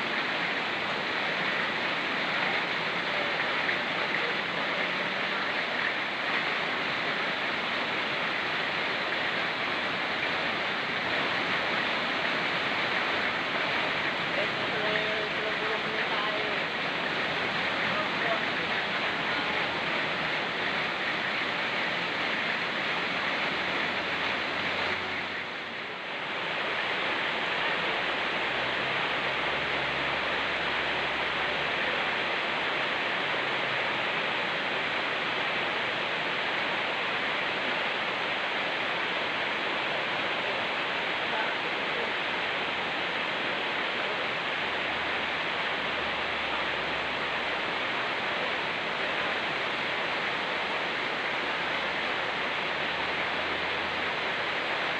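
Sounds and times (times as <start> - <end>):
fast-flowing stream: 0.0 - 54.9
rain falling: 0.0 - 54.9.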